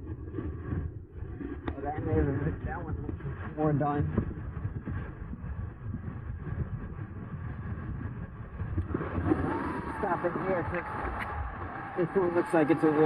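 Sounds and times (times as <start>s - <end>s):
wind rumble on microphone: 0.0s - 13.0s
tyres on road: 8.8s - 13.0s.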